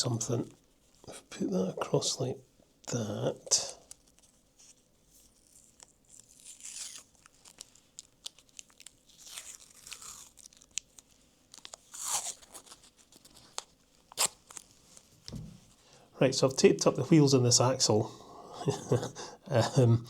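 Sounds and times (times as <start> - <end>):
adhesive tape being torn: 5.4 - 14.7.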